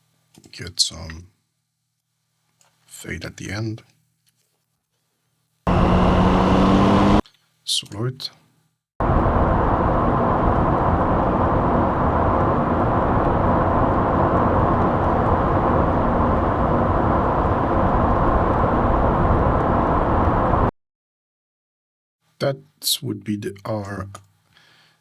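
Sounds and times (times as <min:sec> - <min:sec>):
car engine and road noise: 0:05.7 - 0:07.2, 0:09.0 - 0:20.7.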